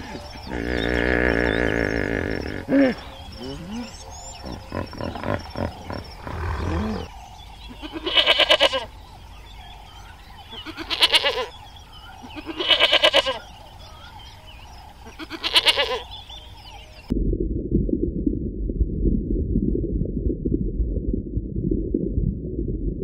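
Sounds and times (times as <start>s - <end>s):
low grunting: 0.0s - 7.1s
goat bleating: 7.8s - 8.9s, 10.6s - 11.5s, 12.2s - 13.4s, 15.1s - 16.0s.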